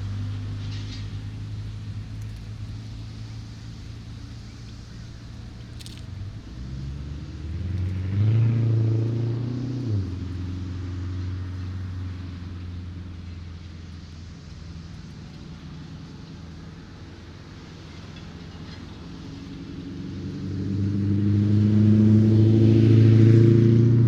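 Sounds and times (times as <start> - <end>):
car driving past: 3.0 - 13.7, 17.8 - 24.0.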